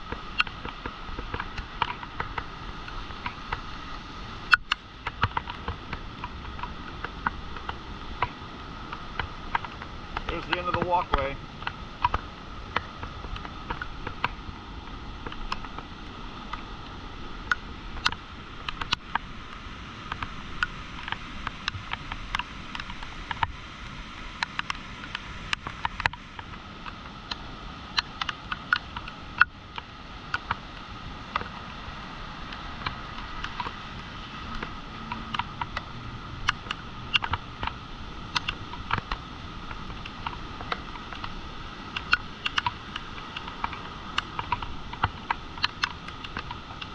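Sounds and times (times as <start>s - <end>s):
floodwater rushing: 0.0s - 46.9s
sharp clicks and taps: 9.2s - 12.2s.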